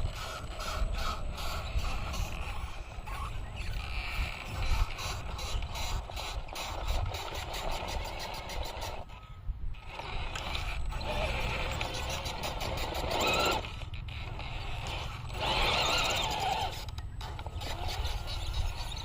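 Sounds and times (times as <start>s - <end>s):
toy truck drivetrain creaking: 0.0s - 19.0s.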